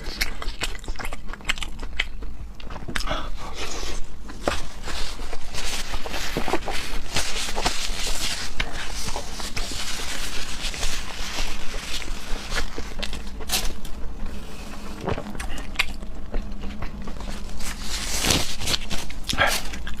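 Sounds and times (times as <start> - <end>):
chewing and mouth smacks: 0.0 - 3.1, 15.0 - 17.4.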